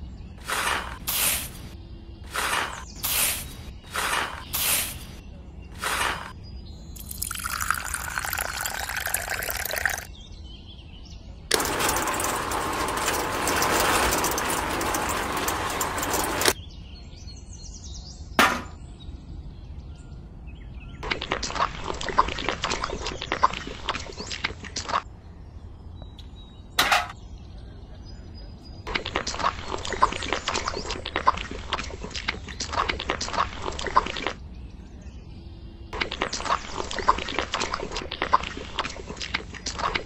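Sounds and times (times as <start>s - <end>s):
cement mixer rushing noise: 0.4s - 1.7s, 2.3s - 5.2s, 5.8s - 6.3s, 11.5s - 16.6s.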